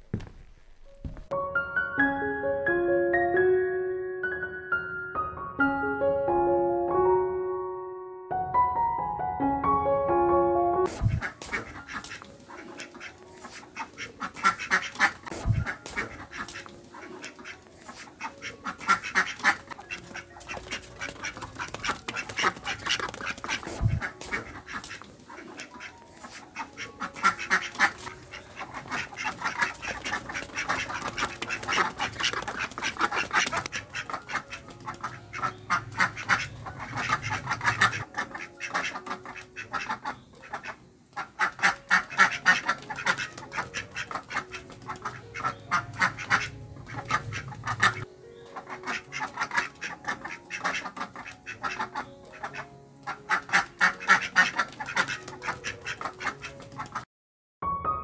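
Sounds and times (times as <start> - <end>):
ducks quacking: 10.9 - 57.0.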